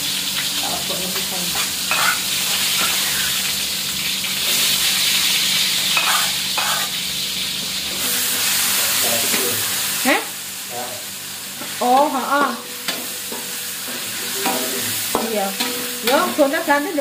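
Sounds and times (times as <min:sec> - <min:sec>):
egg sizzling in a wok: 0:00.0 - 0:17.0
spatula scraping a pan: 0:01.5 - 0:03.5, 0:05.8 - 0:07.0.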